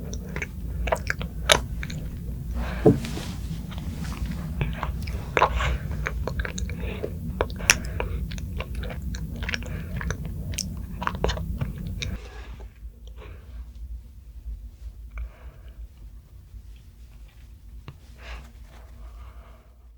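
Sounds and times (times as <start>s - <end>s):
person chewing: 0.0s - 12.2s
wet clicks and smacks: 4.6s - 12.2s.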